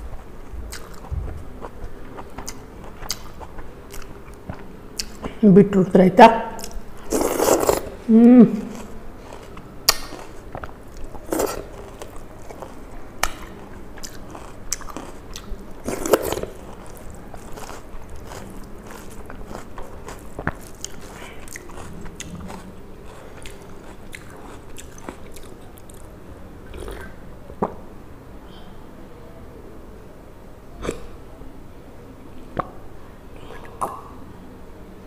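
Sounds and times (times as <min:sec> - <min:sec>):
chewing and crunching food: 0:00.0 - 0:05.4, 0:08.6 - 0:27.1.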